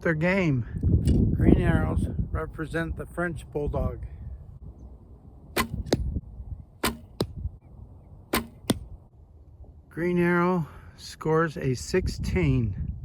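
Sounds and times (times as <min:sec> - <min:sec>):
arrow striking target: 0:05.5 - 0:06.2, 0:06.8 - 0:07.4, 0:08.3 - 0:08.9
bow string snapping: 0:05.6 - 0:06.1, 0:08.3 - 0:08.9.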